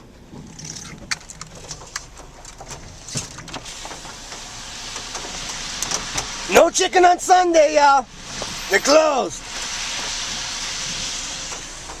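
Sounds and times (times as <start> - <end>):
car driving rumble: 0.0 - 12.0
hiss of wet road: 3.6 - 12.0.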